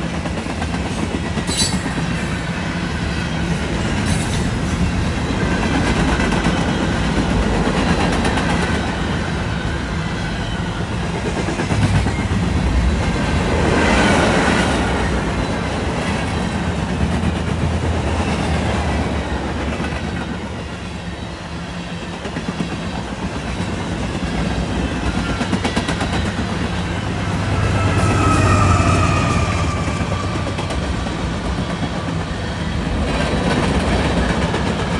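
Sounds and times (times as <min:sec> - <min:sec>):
steel wheels clattering over rail joints: 0:00.0 - 0:09.5
freight cars rumbling past: 0:08.9 - 0:19.7, 0:24.5 - 0:34.7.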